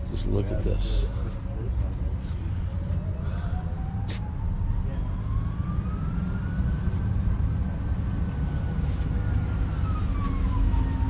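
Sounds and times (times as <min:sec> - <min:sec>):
engine rumble: 0:00.0 - 0:11.0
faint siren wailing: 0:02.4 - 0:11.0.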